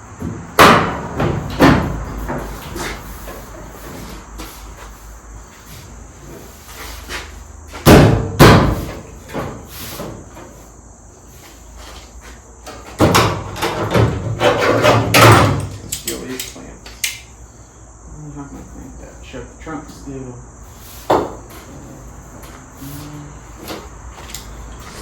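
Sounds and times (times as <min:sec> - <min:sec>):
metal bangs on car body: 0:00.2 - 0:02.5, 0:07.8 - 0:09.0, 0:13.0 - 0:15.7
knocking and clattering: 0:12.7 - 0:16.5.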